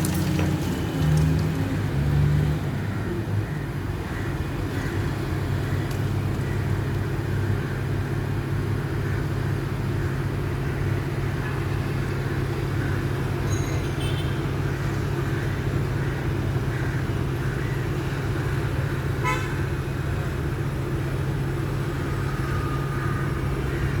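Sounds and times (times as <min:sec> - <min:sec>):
diesel engine droning: 0:14.6 - 0:24.0.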